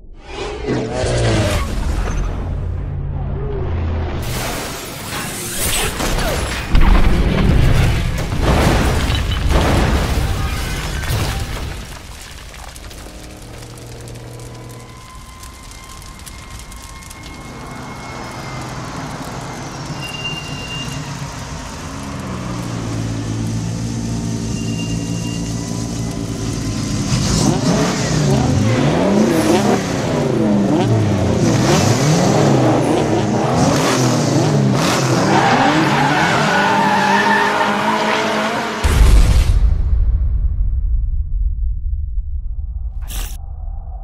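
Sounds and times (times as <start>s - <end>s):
car engines revving and passing: 25.8s - 38.8s
heavy low boom: 38.8s - 44.0s.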